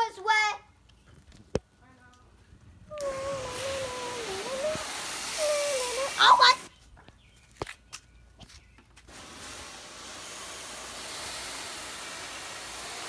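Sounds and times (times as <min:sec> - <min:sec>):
steady hiss: 0:02.9 - 0:06.7, 0:09.0 - 0:13.0.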